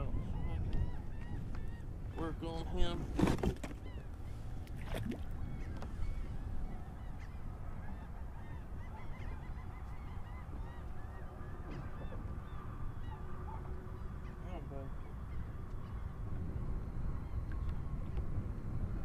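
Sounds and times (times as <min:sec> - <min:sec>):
gulls calling: 0:00.0 - 0:18.7
wind: 0:00.0 - 0:19.0
water rumbling: 0:02.2 - 0:06.2.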